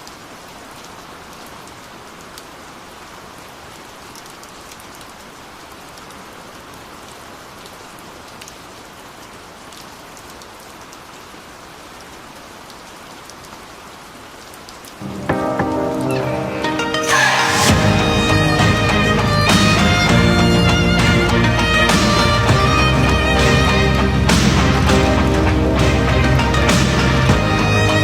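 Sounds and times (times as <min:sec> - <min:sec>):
waterfall rushing: 0:15.0 - 0:28.0.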